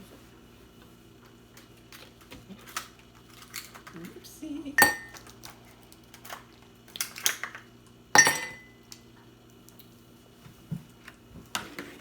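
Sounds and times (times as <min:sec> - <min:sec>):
tableware clinking: 0:04.8 - 0:05.2, 0:08.2 - 0:08.8.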